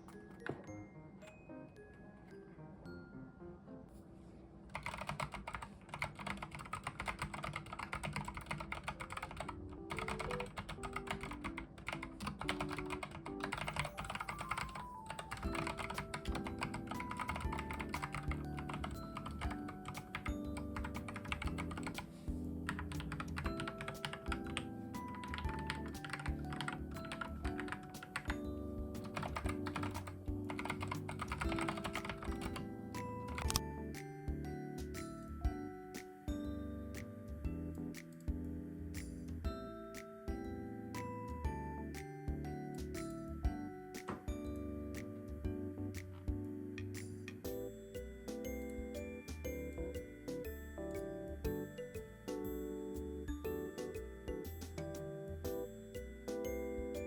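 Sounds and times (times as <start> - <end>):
background music: 0.0 - 4.8, 6.3 - 57.0
mechanical keyboard typing: 4.7 - 33.6.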